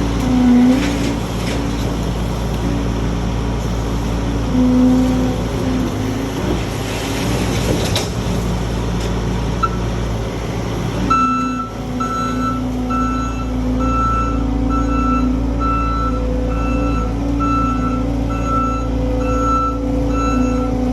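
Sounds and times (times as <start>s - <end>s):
diesel engine running: 0.0s - 20.9s
backup alarm beeping: 11.1s - 20.7s.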